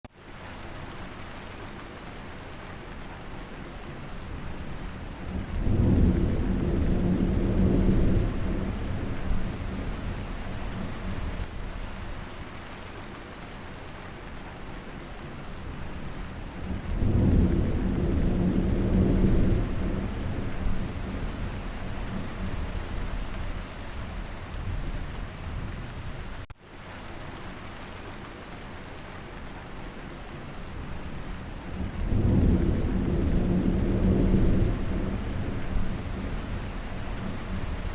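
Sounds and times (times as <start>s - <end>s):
rain falling: 0.1s - 37.9s
low rolls of thunder: 4.6s - 11.6s, 16.0s - 26.4s, 31.0s - 37.9s.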